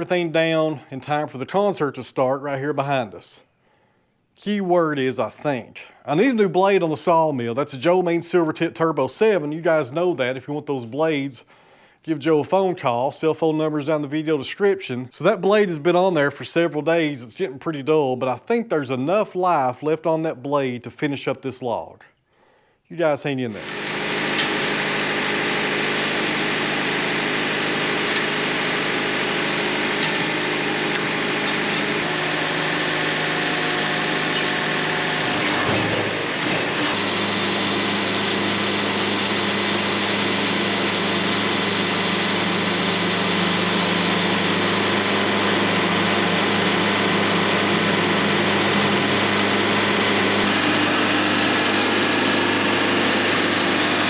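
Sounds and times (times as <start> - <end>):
band sawmill cutting log: 23.5 - 54.0.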